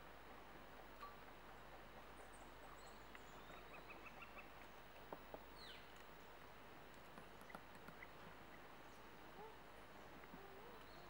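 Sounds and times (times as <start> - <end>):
faint high bird calls: 7.4 - 11.0.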